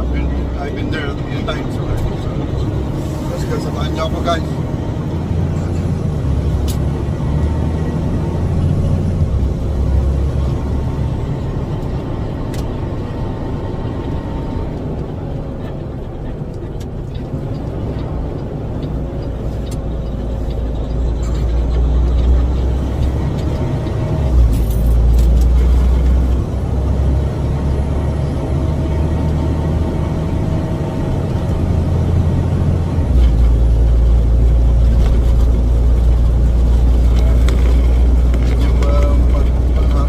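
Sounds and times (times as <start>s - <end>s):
truck engine rumbling: 0.0s - 40.0s.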